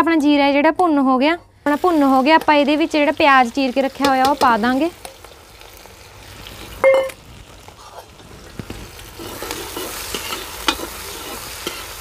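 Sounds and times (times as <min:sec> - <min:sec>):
onions sizzling in oil: 0:01.6 - 0:12.0
ladle scraping pan: 0:07.8 - 0:12.0.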